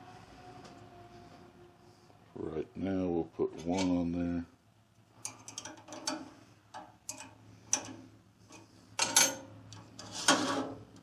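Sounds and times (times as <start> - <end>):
faint steady hum: 0.0 - 11.0
metal parts clicking and clinking: 5.2 - 9.8.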